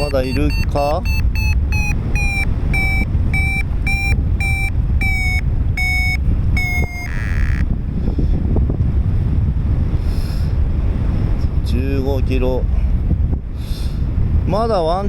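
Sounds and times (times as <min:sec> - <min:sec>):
short buzz: 0:00.0 - 0:07.7
variometer short high-pitched beeps: 0:00.0 - 0:07.7
wind rumbling on microphone: 0:00.0 - 0:15.0.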